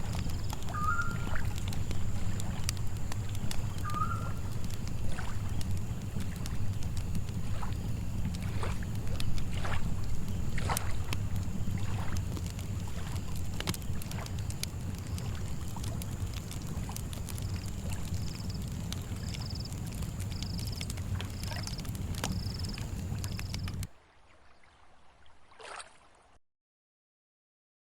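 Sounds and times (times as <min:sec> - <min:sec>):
cricket chirps: 0:00.0 - 0:23.8
campfire crackling: 0:00.0 - 0:23.9
lake water lapping: 0:00.0 - 0:26.4.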